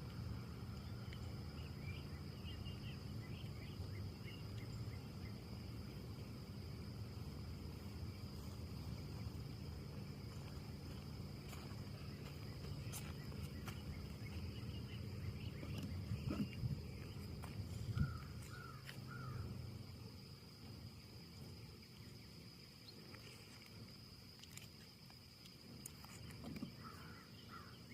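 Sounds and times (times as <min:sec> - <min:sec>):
wind in the trees: 0:00.0 - 0:22.6
high insect drone: 0:00.0 - 0:27.9.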